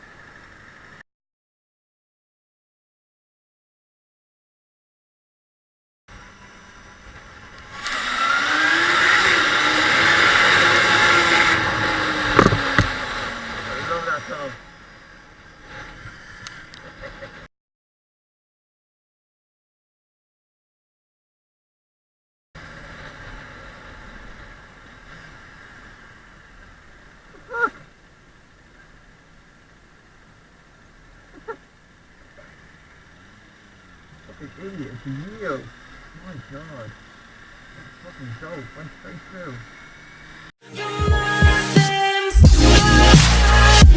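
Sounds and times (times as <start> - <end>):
motorcycle engine revving: 6.1 - 17.5, 22.6 - 29.2, 30.4 - 40.6.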